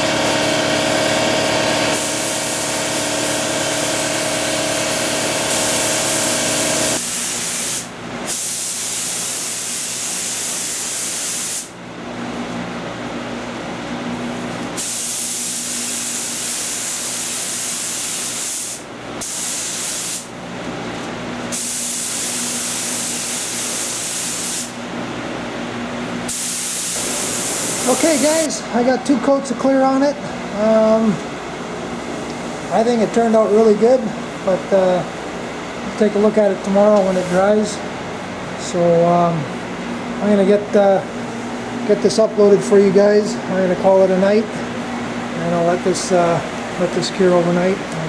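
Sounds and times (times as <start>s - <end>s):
paint spray gun hissing: 1.9s - 11.7s, 14.8s - 20.3s, 21.5s - 24.8s, 26.3s - 28.5s.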